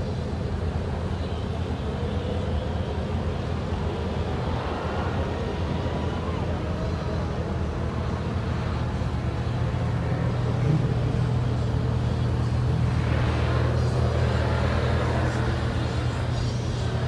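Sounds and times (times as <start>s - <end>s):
car engine running at low speed: 0.0s - 17.0s.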